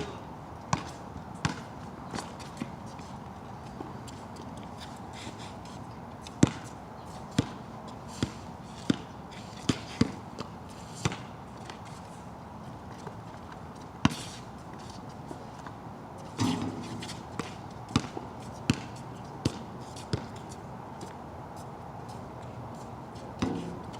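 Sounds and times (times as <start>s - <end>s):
basketball bouncing on wet court: 0.7s - 1.6s, 6.4s - 6.6s, 9.7s - 10.2s, 16.4s - 20.3s.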